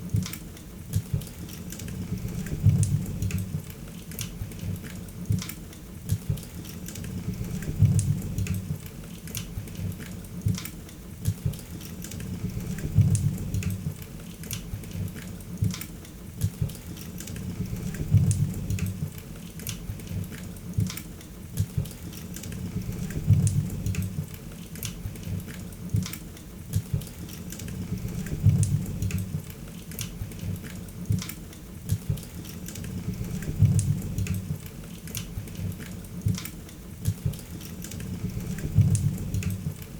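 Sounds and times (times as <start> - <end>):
low rumble of flames: 2.0 - 3.7, 7.0 - 8.9, 12.2 - 14.0, 17.4 - 19.2, 22.5 - 24.4, 27.7 - 29.5, 32.8 - 34.7, 38.0 - 39.8.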